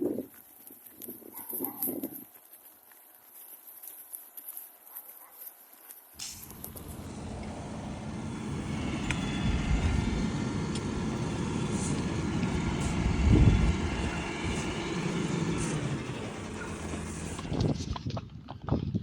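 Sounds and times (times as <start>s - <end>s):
road traffic rumble: 6.1s - 18.0s.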